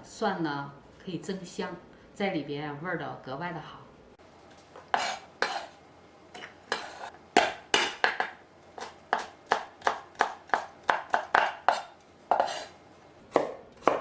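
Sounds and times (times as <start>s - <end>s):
knife chopping on cutting board: 4.8s - 5.8s, 6.4s - 14.0s.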